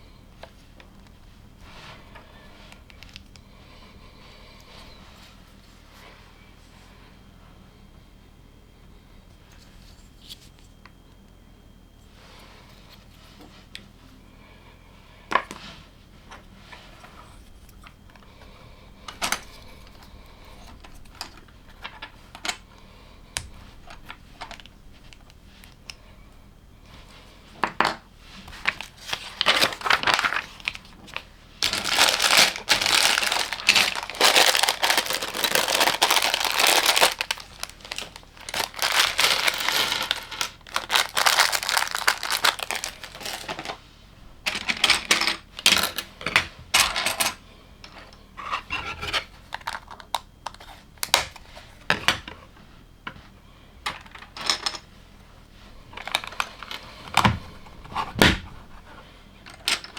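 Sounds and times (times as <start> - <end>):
plastic bag crinkling: 28.5 - 43.8, 49.4 - 50.6, 55.8 - 59.0.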